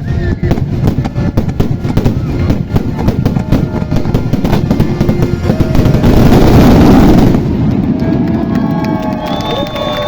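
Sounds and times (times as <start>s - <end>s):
loud show music: 0.0s - 8.4s
fireworks bursting: 0.0s - 10.0s.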